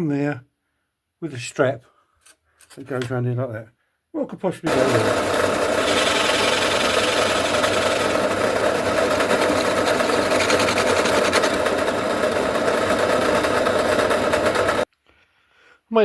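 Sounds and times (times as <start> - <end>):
machine mechanical chatter: 4.7 - 14.8.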